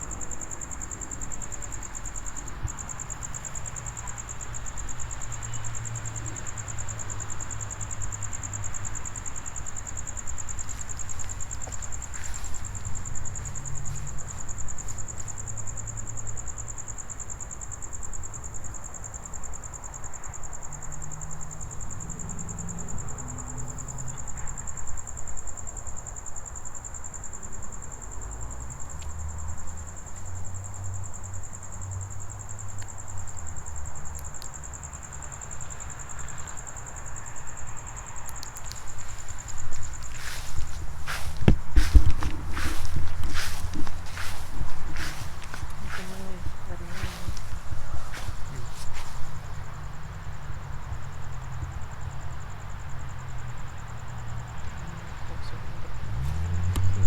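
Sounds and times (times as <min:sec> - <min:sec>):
crickets trilling: 0:00.0 - 0:57.0
low uneven rumble: 0:38.6 - 0:49.7.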